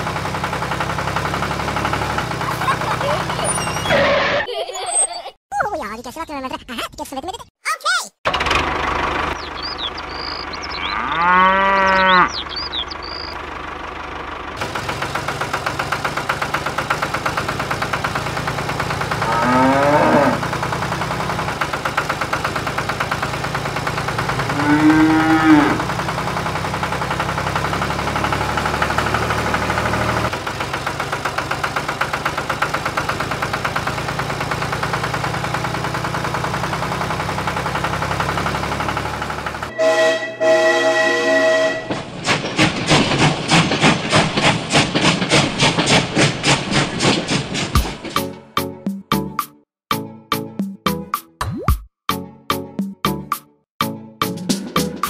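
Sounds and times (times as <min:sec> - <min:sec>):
rhythmic engine-like running: 0:00.0 - 0:03.9, 0:08.3 - 0:10.9, 0:11.9 - 0:40.7, 0:41.5 - 0:48.6
whistle-like tones: 0:03.4 - 0:04.1
cow mooing: 0:10.7 - 0:12.4, 0:19.2 - 0:20.5, 0:24.5 - 0:25.9.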